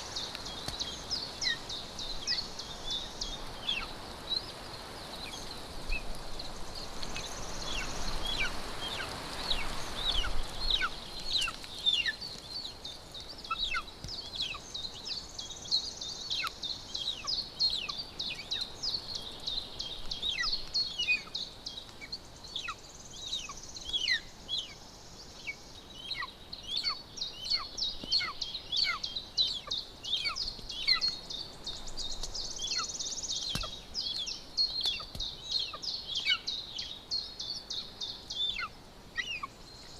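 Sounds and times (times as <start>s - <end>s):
steady hiss: 0.0s - 39.9s
eagle chick begging calls: 38.4s - 39.5s.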